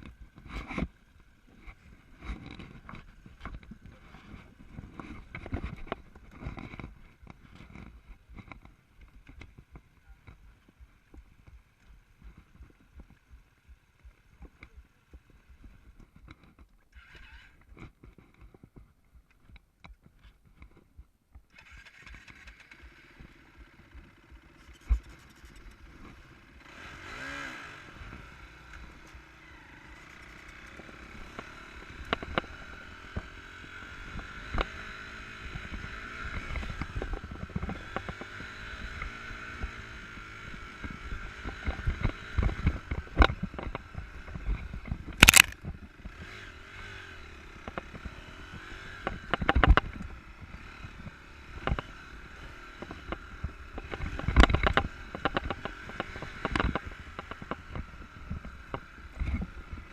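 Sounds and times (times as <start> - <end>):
motorcycle engine revving: 21.5 - 59.9
sharp crack: 45.2 - 45.6.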